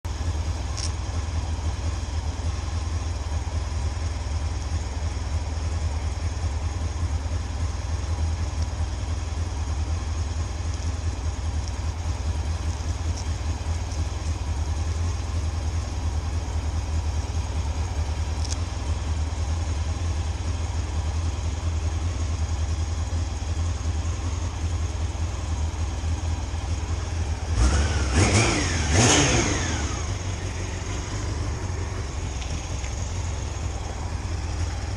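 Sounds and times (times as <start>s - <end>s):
motorcycle engine rumbling: 0.0s - 34.9s.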